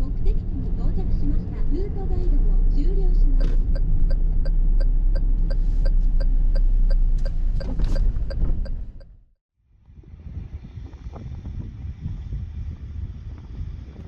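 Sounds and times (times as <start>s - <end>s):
car road rumble: 0.0s - 9.3s
turn signal ticking: 2.1s - 9.2s.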